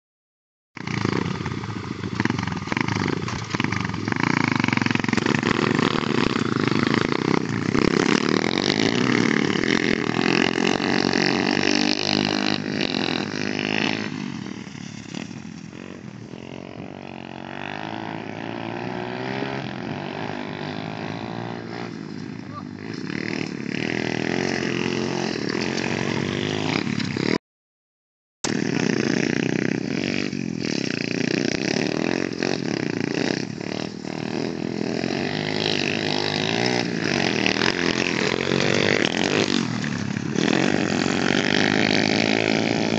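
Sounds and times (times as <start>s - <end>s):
motorbike engine running: 0.8s - 18.4s, 28.5s - 42.9s.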